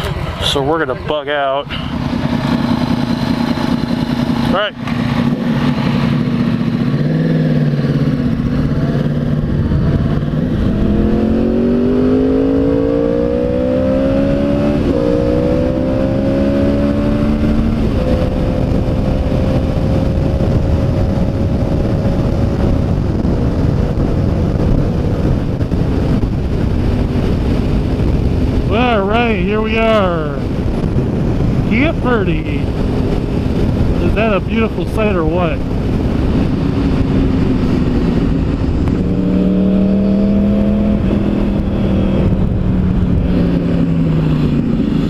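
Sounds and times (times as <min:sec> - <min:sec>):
motorcycle engine accelerating: 0:00.0 - 0:45.0
wind rushing: 0:01.8 - 0:45.0.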